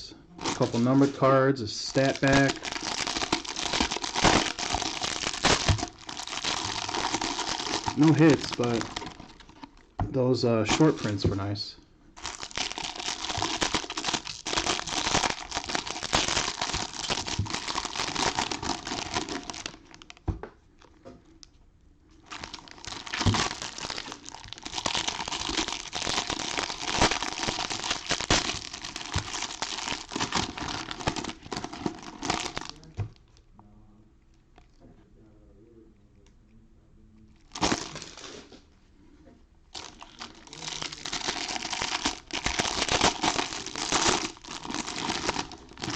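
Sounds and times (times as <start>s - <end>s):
foil wrappers tearing and crinkling: 0.4s - 1.2s, 1.8s - 9.8s, 12.2s - 20.2s, 22.2s - 32.9s, 37.5s - 38.5s, 39.8s - 45.9s.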